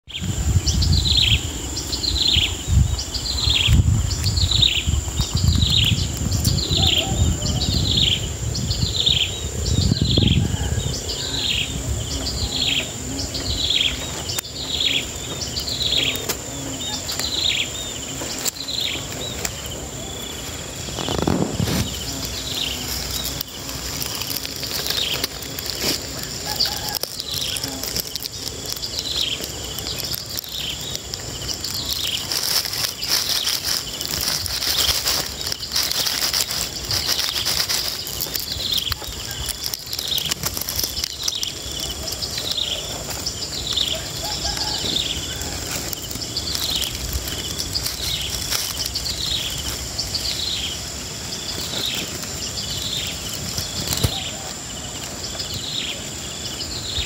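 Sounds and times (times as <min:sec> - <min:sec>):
high-pitched insect drone: 0:00.1 - 0:57.0.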